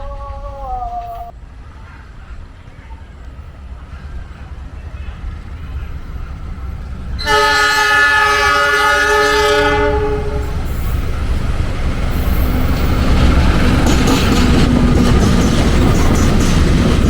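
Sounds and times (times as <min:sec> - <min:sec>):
train rumbling and clattering past: 0:00.0 - 0:17.0
locomotive horn: 0:07.2 - 0:10.7.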